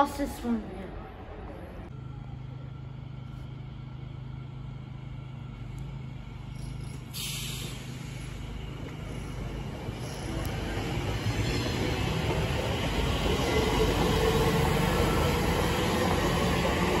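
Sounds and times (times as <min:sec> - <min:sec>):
electric train humming: 0:00.0 - 0:17.0
train hiss: 0:06.5 - 0:10.5.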